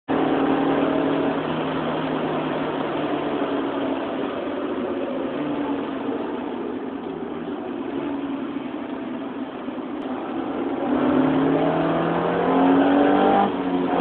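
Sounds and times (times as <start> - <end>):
car engine at speed: 0.1 - 14.0.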